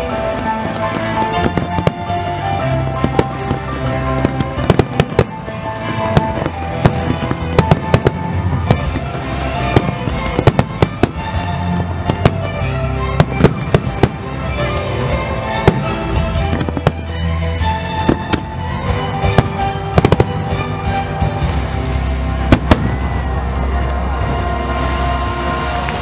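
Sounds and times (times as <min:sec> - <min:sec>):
fireworks bursting with bangs: 0:00.0 - 0:26.0.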